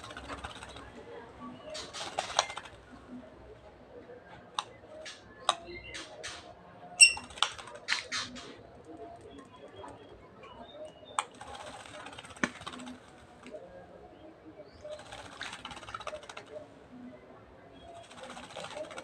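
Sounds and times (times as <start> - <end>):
bird splashing and fluttering in water: 0.0 - 1.0, 1.7 - 2.9, 11.2 - 13.3, 14.8 - 16.6, 17.8 - 19.0
bird chirp: 3.9 - 19.0.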